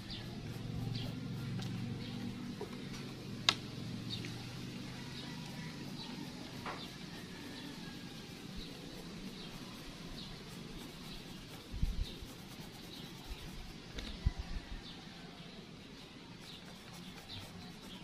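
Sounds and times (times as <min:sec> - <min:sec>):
bird chirping: 0:00.0 - 0:04.6.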